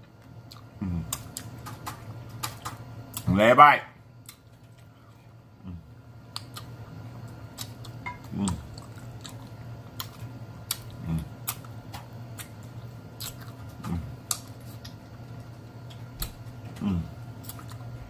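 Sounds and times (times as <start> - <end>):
faint low hum: 0.0 - 18.0
wet chewing: 7.5 - 15.0, 15.8 - 17.9.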